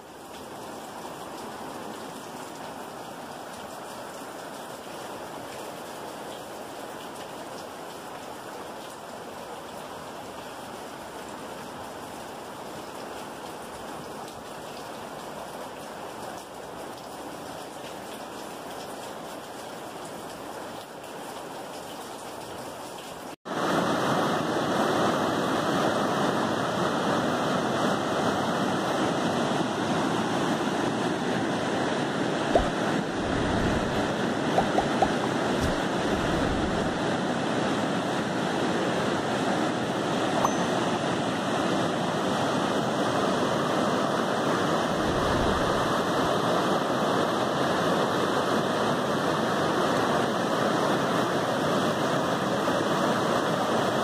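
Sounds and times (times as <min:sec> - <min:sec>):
river rushing over rapids: 0:00.0 - 0:20.8, 0:23.5 - 0:54.0
low thumps on microphone: 0:32.5 - 0:36.6.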